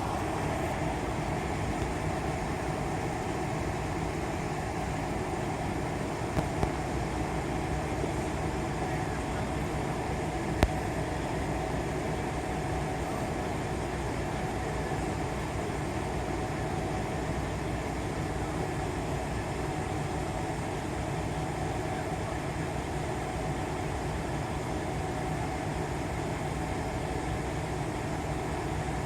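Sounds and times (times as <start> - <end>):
truck engines idling: 0.0 - 29.0.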